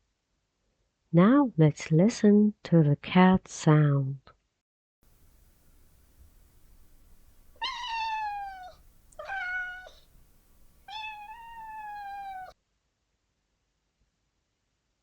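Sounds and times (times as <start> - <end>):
cat meowing: 5.3 - 12.6.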